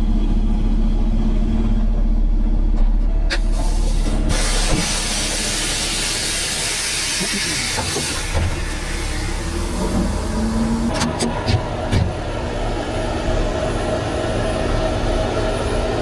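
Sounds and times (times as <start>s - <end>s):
low steady rumble: 0.0s - 4.3s
loud steady hiss: 3.6s - 10.9s.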